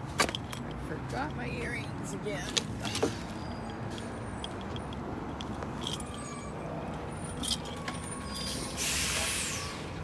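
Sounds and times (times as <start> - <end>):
keys jingling: 3.6 - 6.6, 7.2 - 8.6.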